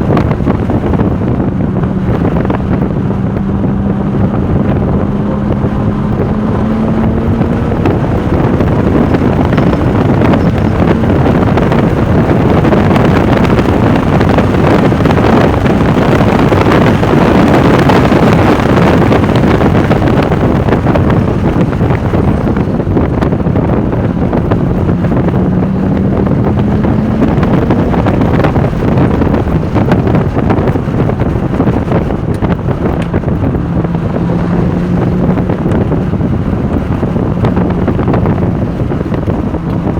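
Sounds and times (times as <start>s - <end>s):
car engine at speed: 0.0s - 39.9s
wind rush buffeting microphone: 0.0s - 39.9s.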